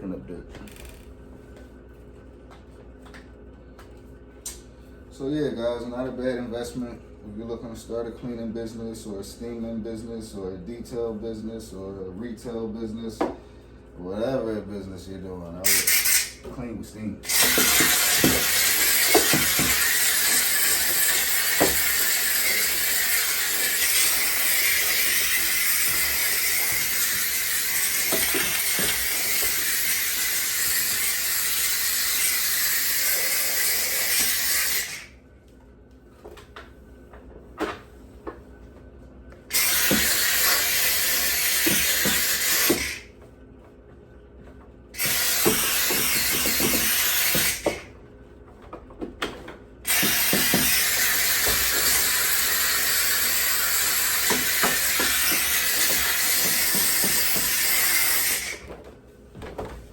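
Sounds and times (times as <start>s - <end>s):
steam cleaner hissing: 15.6s - 16.4s, 17.2s - 35.1s, 39.5s - 43.0s, 45.0s - 47.8s, 49.9s - 58.7s.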